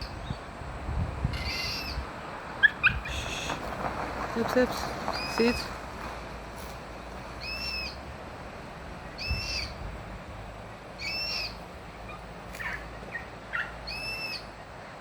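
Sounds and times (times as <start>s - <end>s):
cockatoos calling: 1.3s - 5.8s, 7.3s - 8.1s, 9.1s - 9.9s, 10.9s - 14.8s.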